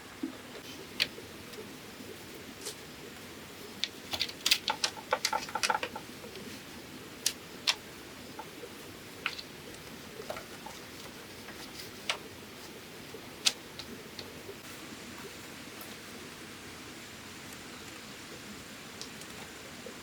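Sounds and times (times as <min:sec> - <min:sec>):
bamboo knocks and clicks: 0:03.8 - 0:06.1.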